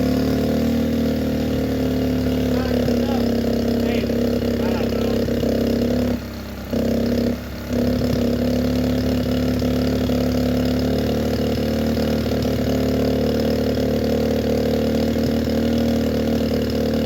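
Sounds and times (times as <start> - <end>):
pit bike engine idling: 0.0 - 17.0.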